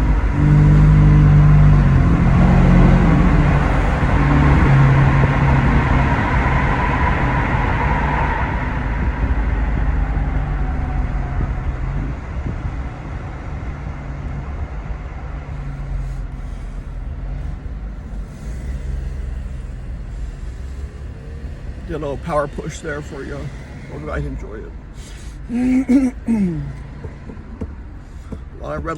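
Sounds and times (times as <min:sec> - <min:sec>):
truck exhaust accelerating: 0:00.0 - 0:28.9.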